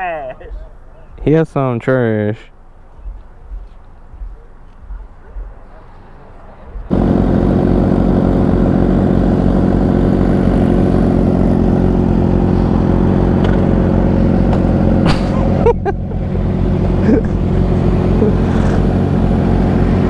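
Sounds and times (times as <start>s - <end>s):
motorcycle engine running steadily: 6.7s - 20.0s.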